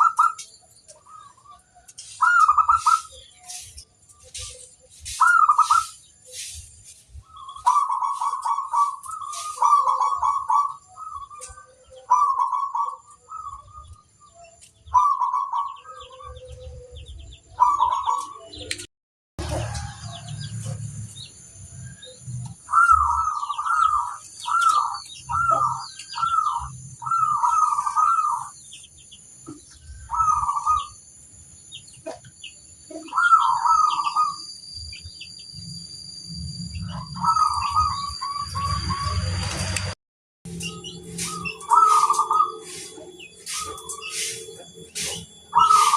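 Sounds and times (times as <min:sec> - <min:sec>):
dove cooing trilled notes: 0:00.0 - 0:06.6, 0:07.2 - 0:18.6, 0:22.5 - 0:28.6, 0:29.7 - 0:31.0, 0:32.9 - 0:34.5, 0:36.8 - 0:39.3, 0:40.5 - 0:45.9.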